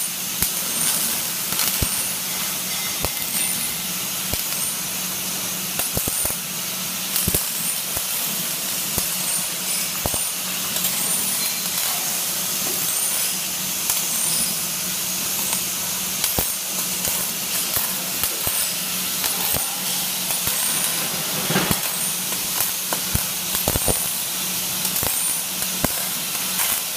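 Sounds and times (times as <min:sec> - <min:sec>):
arc welding hissing and crackling: 0:00.0 - 0:26.9
welding spatter pops: 0:05.7 - 0:06.4, 0:07.1 - 0:08.2, 0:08.8 - 0:11.9, 0:15.3 - 0:26.9
low machinery hum: 0:15.2 - 0:25.1.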